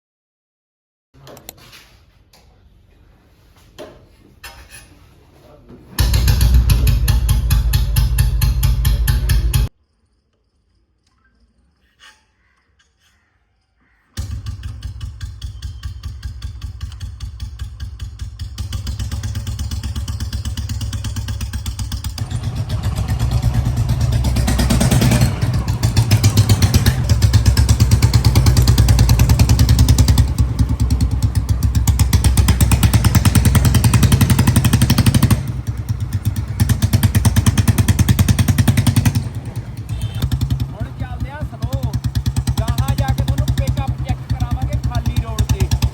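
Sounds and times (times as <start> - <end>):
motorcycle engine revving: 6.0 - 9.7, 14.2 - 45.9.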